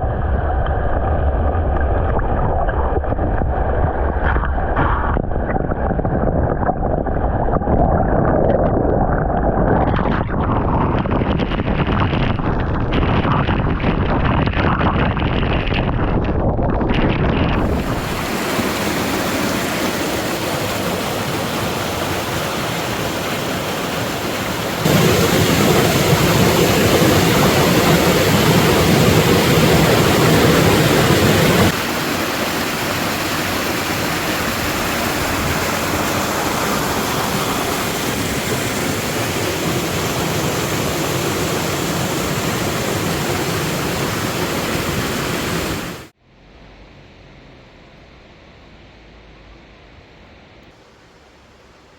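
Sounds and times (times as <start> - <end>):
waterfall rushing: 17.6 - 46.1.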